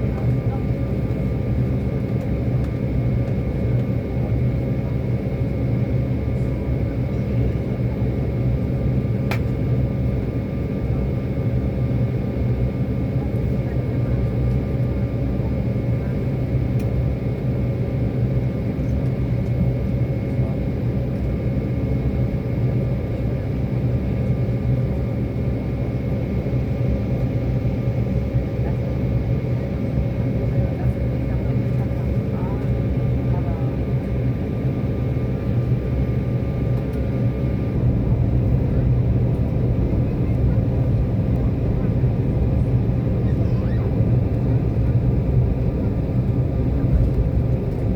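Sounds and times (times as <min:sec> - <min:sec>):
jet engine rumble: 0:00.0 - 0:47.9
faint click: 0:09.3 - 0:09.5.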